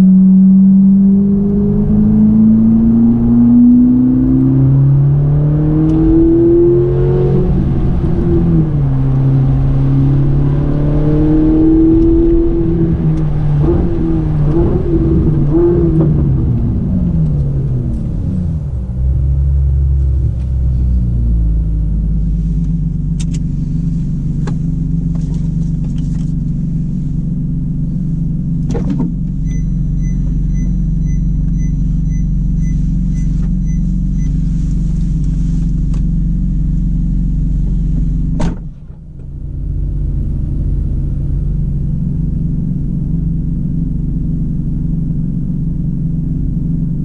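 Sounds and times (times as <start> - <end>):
car engine idling inside cabin: 7.3 - 47.0
sharp thump: 28.7 - 29.2, 37.9 - 39.2
regular beeping: 29.4 - 34.4.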